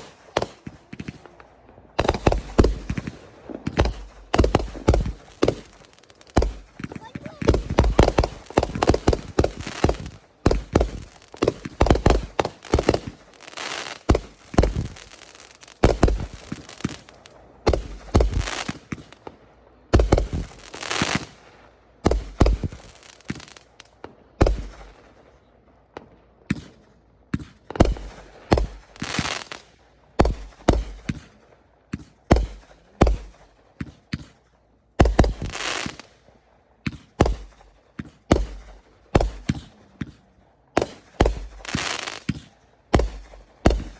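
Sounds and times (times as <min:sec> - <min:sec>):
fireworks crackling hiss: 0:00.0 - 0:19.4, 0:20.0 - 0:25.0, 0:27.3 - 0:36.3, 0:40.8 - 0:43.9
fireworks banging: 0:00.0 - 0:25.3, 0:25.9 - 0:43.9.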